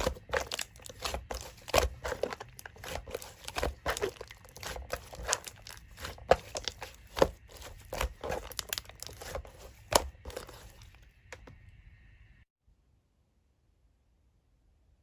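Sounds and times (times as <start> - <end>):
slime squished by hand crackling: 0.0 - 10.8.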